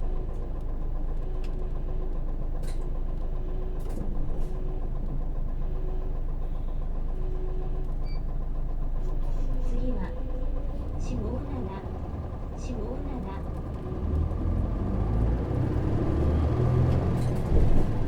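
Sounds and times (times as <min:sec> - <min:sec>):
bus diesel engine running: 0:00.0 - 0:18.0
bus body rattles: 0:07.0 - 0:18.0.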